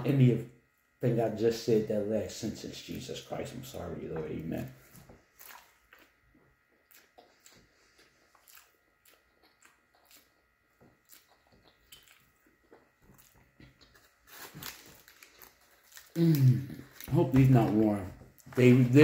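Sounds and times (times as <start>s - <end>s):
faint chewing mouth clicks: 6.8s - 14.0s.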